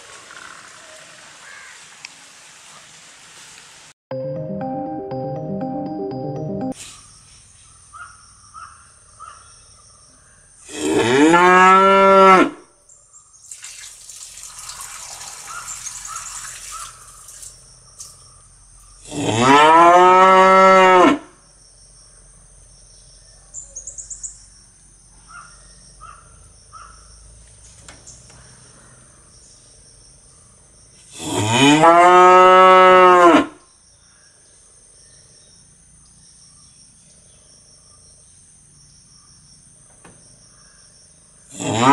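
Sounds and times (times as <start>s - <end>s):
cow mooing: 19.1s - 21.2s, 31.3s - 33.6s.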